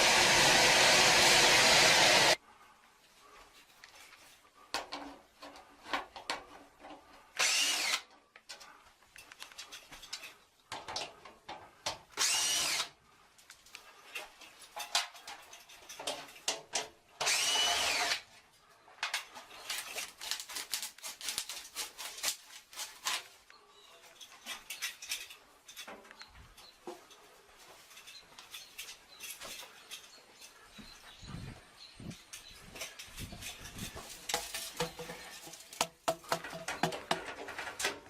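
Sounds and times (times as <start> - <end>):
cordless drill whining: 0.0 - 2.4, 7.4 - 8.0, 12.2 - 13.0, 17.2 - 18.2
tools clicking and knocking: 4.7 - 12.8, 13.8 - 17.4, 32.3 - 38.0.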